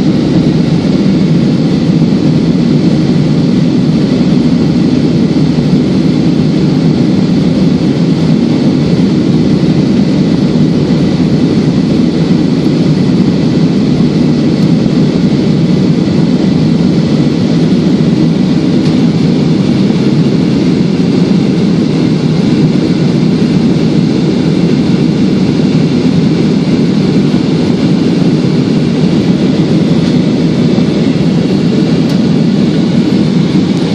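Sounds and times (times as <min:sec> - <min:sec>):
jet engine and airflow rush: 0:00.0 - 0:33.9.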